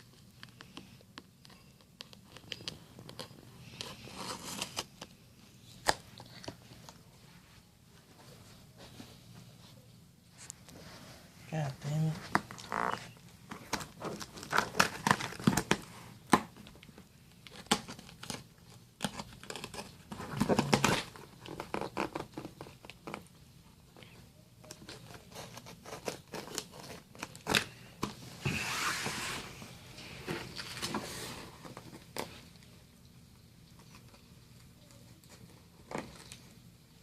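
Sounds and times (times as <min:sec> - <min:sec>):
packing tape tearing off cardboard: 0:13.7 - 0:16.5, 0:19.0 - 0:23.2.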